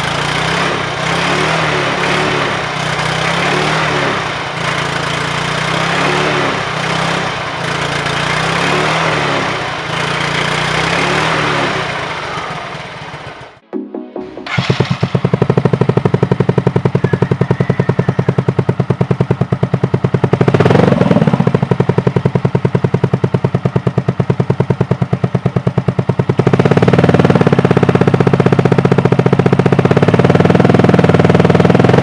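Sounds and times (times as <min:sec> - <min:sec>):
scooter engine idling: 0:00.0 - 0:13.6, 0:14.5 - 0:32.0.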